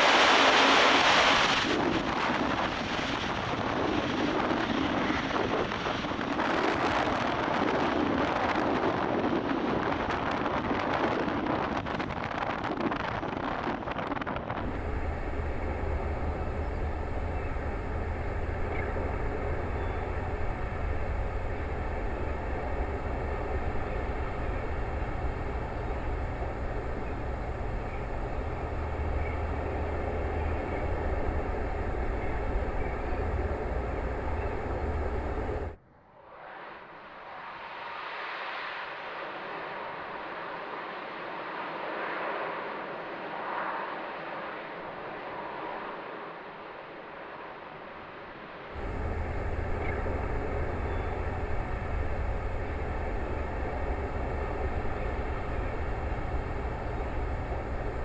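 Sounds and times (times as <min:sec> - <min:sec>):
rushing roar of water: 0:00.0 - 0:07.9, 0:14.6 - 0:35.8, 0:48.8 - 0:58.0
faint steady tones: 0:14.6 - 0:35.8, 0:48.8 - 0:58.0
steady low hum: 0:14.6 - 0:35.8, 0:48.7 - 0:58.0.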